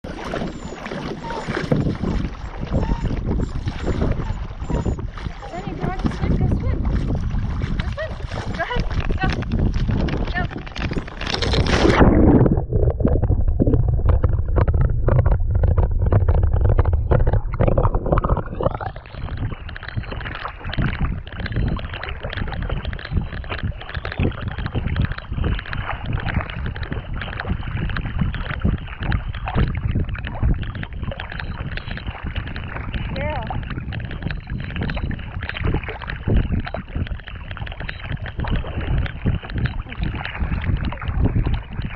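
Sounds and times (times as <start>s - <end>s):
water splashing around paddle: 0.0s - 41.9s
heavy low rumble: 1.3s - 28.9s.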